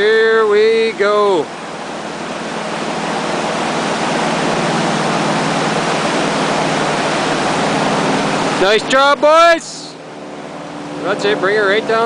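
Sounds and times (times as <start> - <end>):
river rapids rushing: 0.0 - 12.0.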